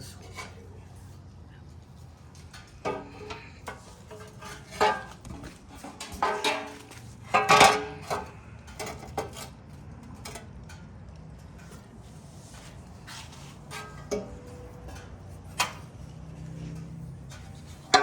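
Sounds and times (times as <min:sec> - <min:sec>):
metal guard clattering knocks: 0:02.5 - 0:08.3, 0:16.8 - 0:18.0.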